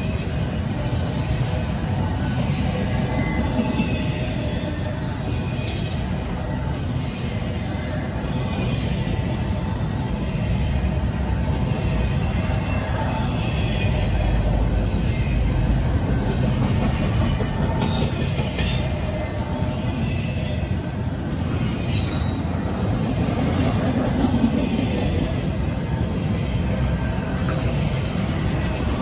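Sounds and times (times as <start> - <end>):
train wheels rumbling on track: 0.0 - 29.0
high-pitched wheel squeals: 15.9 - 20.9.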